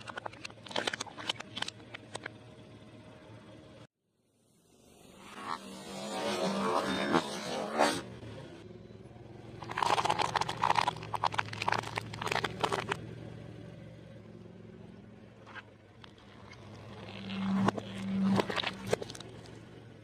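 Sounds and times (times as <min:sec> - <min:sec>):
car engine running: 0:08.0 - 0:20.0
food crunching under tyre: 0:09.6 - 0:13.0, 0:16.0 - 0:19.6.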